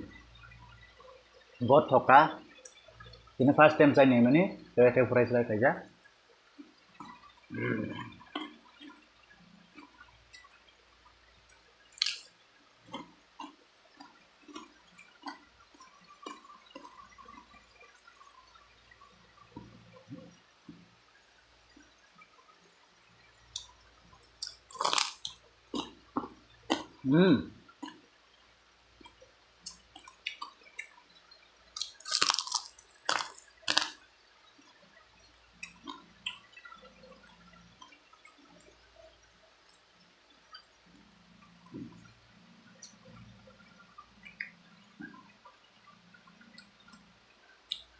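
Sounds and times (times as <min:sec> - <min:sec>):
chewing with wet clicks: 0:02.4 - 0:03.4, 0:05.9 - 0:20.9, 0:21.7 - 0:27.0, 0:27.7 - 0:28.1, 0:29.0 - 0:47.9
wet chewing and sucking: 0:11.5 - 0:12.3, 0:12.9 - 0:17.6, 0:23.6 - 0:27.0, 0:29.0 - 0:31.0, 0:31.8 - 0:34.0.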